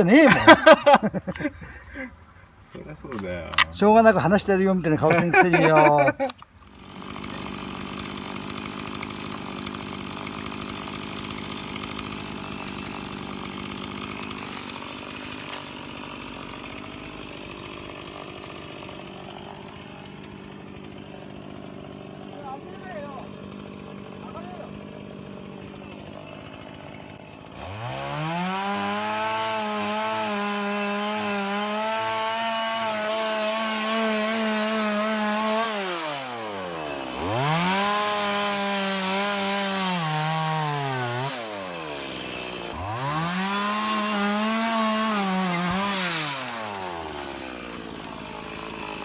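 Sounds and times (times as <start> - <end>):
chainsaw cutting wood: 0.0 - 2.1, 3.1 - 49.0.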